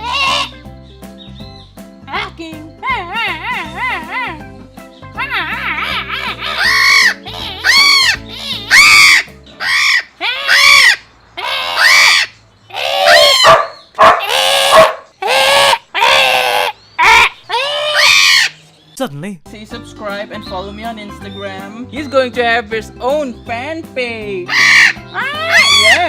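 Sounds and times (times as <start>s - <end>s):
parrot squawking: 0.0s - 0.6s, 5.2s - 18.7s, 24.5s - 26.0s.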